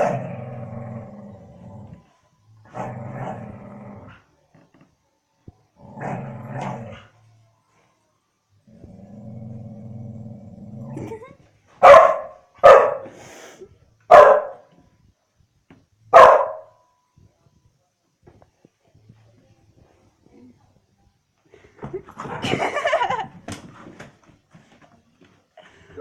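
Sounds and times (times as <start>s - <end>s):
dog growling: 0.0s - 4.3s, 5.8s - 7.2s, 8.7s - 11.3s
dog barking: 11.8s - 13.1s, 14.1s - 14.7s, 16.1s - 16.8s.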